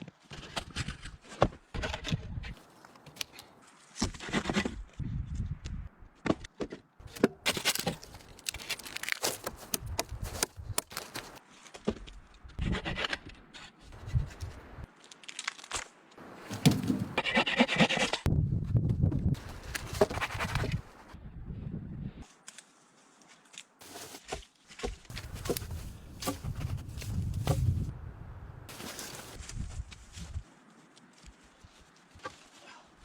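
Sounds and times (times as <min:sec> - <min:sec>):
sticks and brush scraping: 0:07.0 - 0:11.9, 0:16.3 - 0:18.3, 0:19.4 - 0:21.2, 0:22.2 - 0:27.9, 0:28.7 - 0:33.0.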